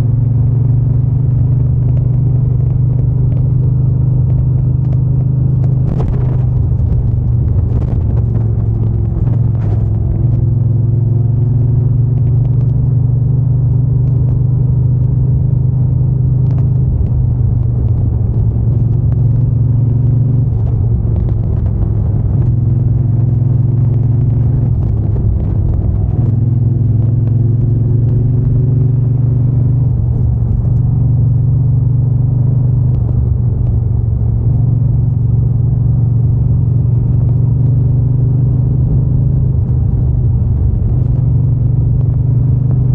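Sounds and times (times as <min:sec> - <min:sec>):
motorcycle engine and exhaust: 0:00.0 - 0:42.9.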